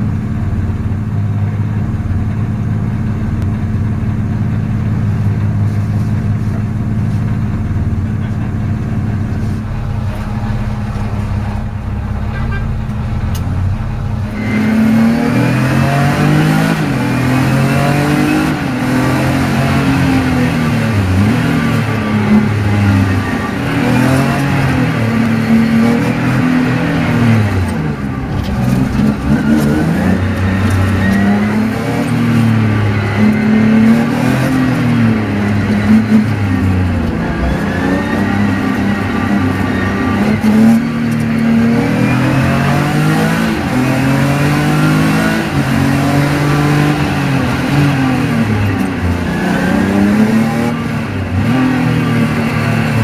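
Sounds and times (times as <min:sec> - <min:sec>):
car engine revving inside cabin: 0:00.0 - 0:53.0.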